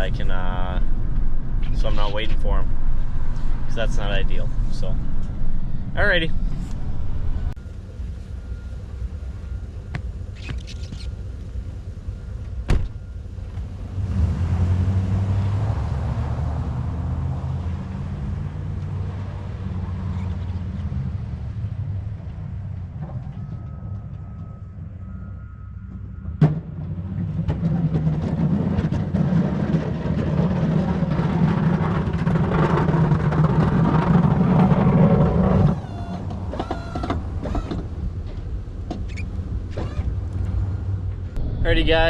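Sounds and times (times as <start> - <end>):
truck engine driving: 0.0 - 42.0
faint short squeaks: 10.3 - 11.3, 35.7 - 37.9, 39.0 - 40.1.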